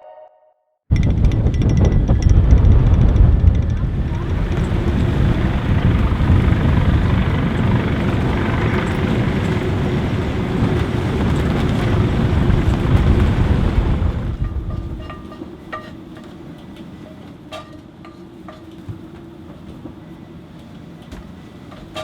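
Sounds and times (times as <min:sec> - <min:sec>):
rushing wind: 0:00.9 - 0:15.4
motor running: 0:02.2 - 0:14.7.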